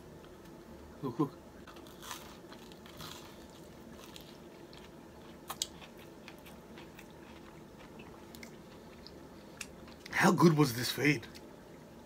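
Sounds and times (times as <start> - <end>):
person chewing food: 1.6 - 10.1.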